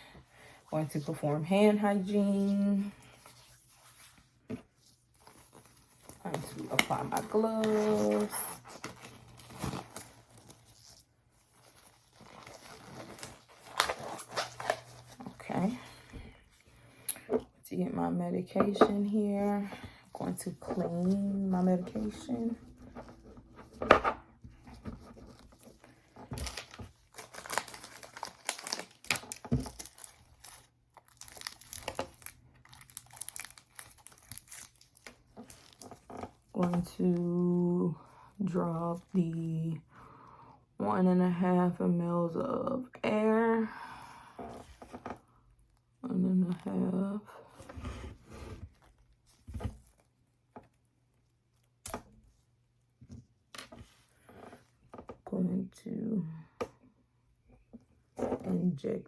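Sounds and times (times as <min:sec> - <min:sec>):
packaging crinkling and tearing: 0:05.1 - 0:15.4, 0:24.9 - 0:36.4.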